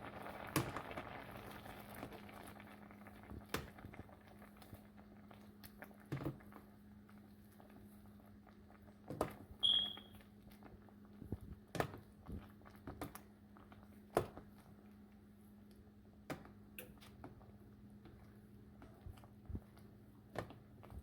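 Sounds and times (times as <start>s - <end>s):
short high beep: 9.6s - 10.2s.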